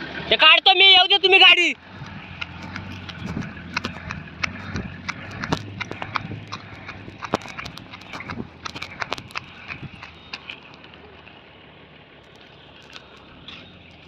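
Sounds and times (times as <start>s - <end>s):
heavy vehicle engine idling: 0.0s - 14.0s
sharp metallic clicks and knocks: 1.8s - 11.0s.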